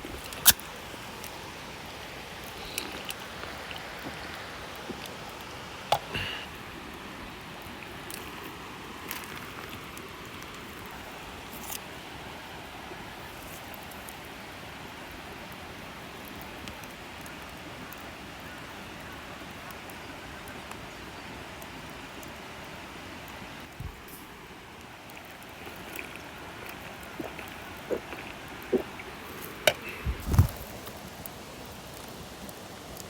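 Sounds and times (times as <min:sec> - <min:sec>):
fire pops: 0:00.0 - 0:01.4, 0:23.7 - 0:33.0
campfire crackling: 0:00.0 - 0:33.0.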